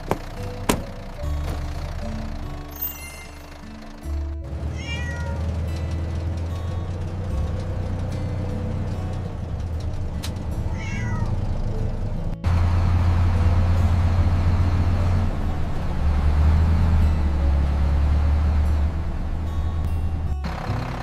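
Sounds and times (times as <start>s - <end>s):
cat meowing: 4.7s - 5.4s, 10.7s - 11.4s.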